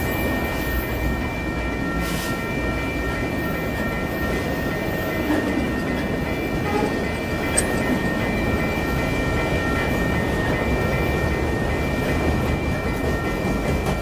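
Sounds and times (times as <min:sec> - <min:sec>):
steel wheels rumbling on rails: 0:02.6 - 0:14.0
high-pitched ringing tones: 0:07.4 - 0:09.8
sharp click: 0:07.6 - 0:07.9.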